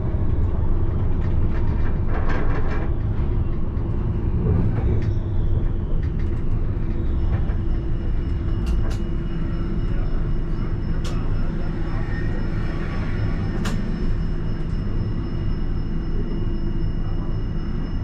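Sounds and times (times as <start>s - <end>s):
tram wheels rumbling on rails: 0.0s - 18.0s
faint high whine: 6.6s - 18.0s.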